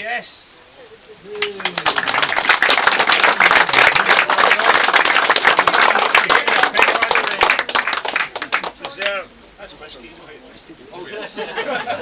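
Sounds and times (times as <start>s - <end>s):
crowd clapping: 1.3s - 9.3s.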